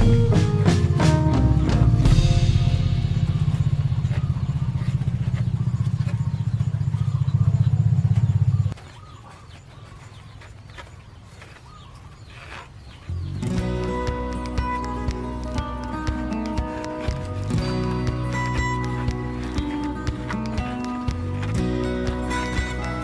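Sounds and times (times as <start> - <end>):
motor running with pulsing drone: 2.2 - 8.8.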